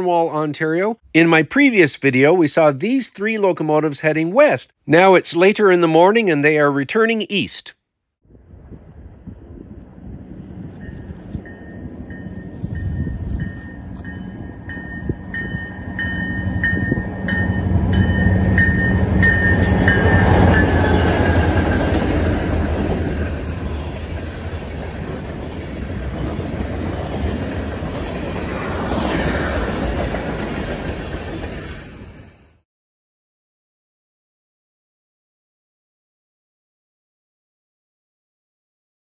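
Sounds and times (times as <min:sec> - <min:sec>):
diesel locomotive engines droning: 0:08.4 - 0:32.6
locomotive bell ringing: 0:10.6 - 0:23.7
train wheels clattering on rails: 0:10.6 - 0:32.1.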